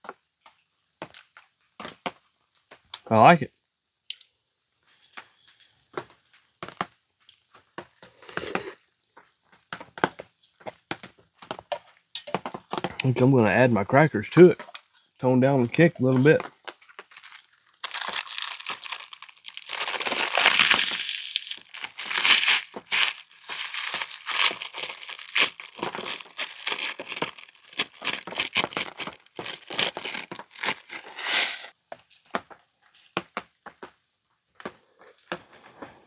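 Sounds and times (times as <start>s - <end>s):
crackers being crushed: 16.1s - 31.8s
plastic wrapper crinkling: 16.8s - 31.8s.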